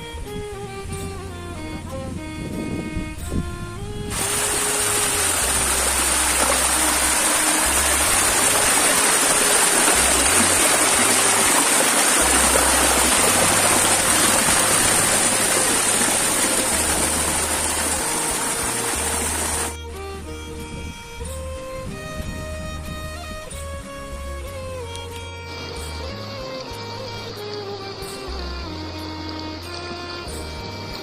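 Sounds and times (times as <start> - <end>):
faint background music: 0.0 - 31.0
waterfall rushing: 4.1 - 20.4, 25.5 - 30.9.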